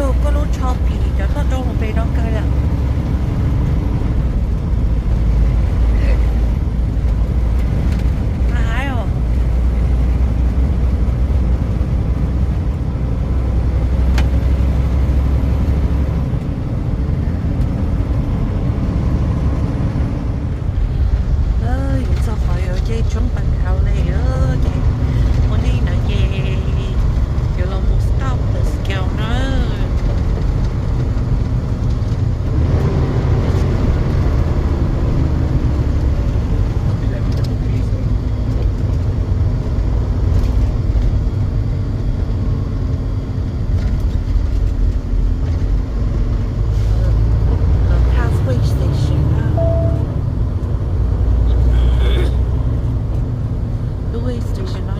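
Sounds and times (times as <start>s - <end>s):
truck engine and road rumble: 0.0s - 54.9s.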